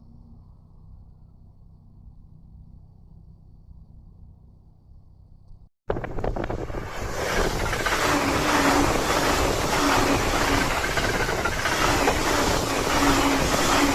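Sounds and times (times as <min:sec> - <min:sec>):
electric train passing: 0:06.0 - 0:13.9.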